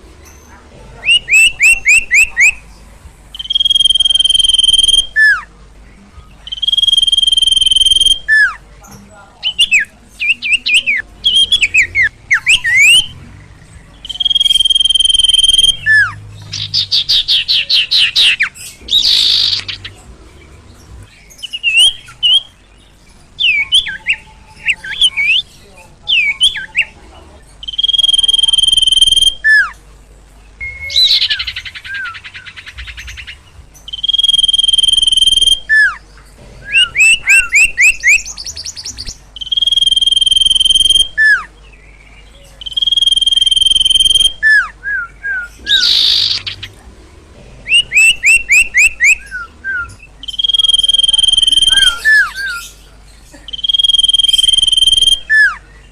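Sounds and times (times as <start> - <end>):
songbird singing: 0.0 - 55.9.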